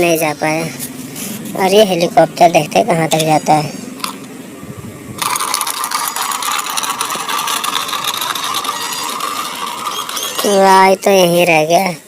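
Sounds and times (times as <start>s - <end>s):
toy gear motor rattling whirr: 5.2s - 11.7s.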